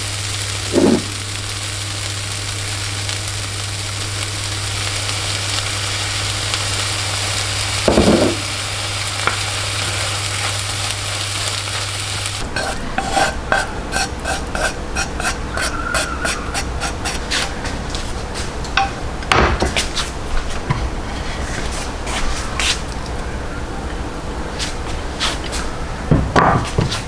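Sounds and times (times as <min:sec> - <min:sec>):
food sizzling in a frying pan: 0:00.0 - 0:17.5
utensil scraping a pan: 0:00.7 - 0:01.2, 0:11.8 - 0:18.1, 0:20.7 - 0:22.8.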